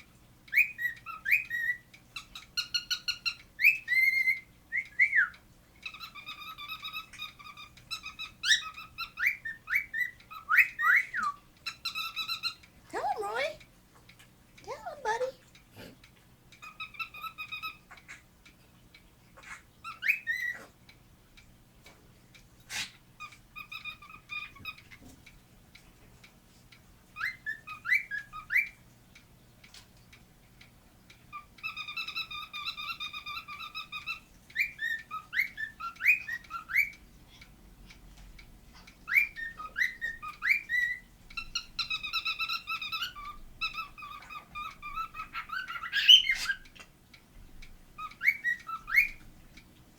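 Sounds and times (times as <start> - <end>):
cockatiel squeaky chatter: 0.5 - 4.5, 5.8 - 13.6, 19.4 - 20.7, 22.7 - 24.9, 31.3 - 37.0, 39.1 - 46.9, 48.0 - 49.2.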